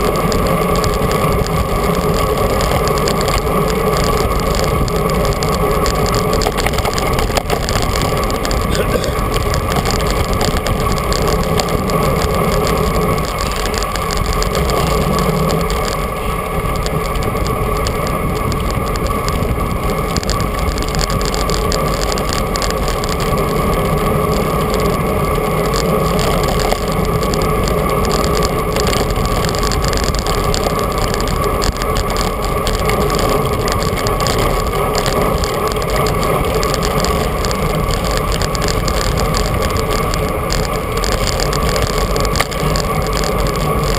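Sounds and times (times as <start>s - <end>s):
bicycle road noise: 0.0s - 43.9s.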